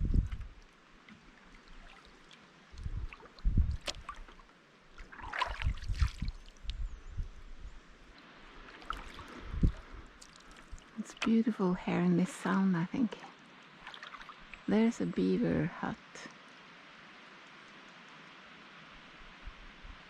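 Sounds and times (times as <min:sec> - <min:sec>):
low bumps: 0:00.0 - 0:00.6
water trickling drips: 0:00.1 - 0:06.8, 0:08.1 - 0:15.3
kayak paddle splashing in water: 0:00.3 - 0:06.7, 0:08.6 - 0:11.5, 0:13.1 - 0:14.7.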